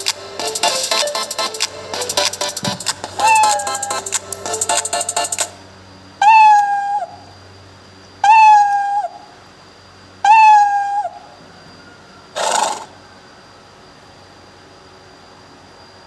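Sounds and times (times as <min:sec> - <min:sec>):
cat meow sound effect: 0:03.2 - 0:03.9.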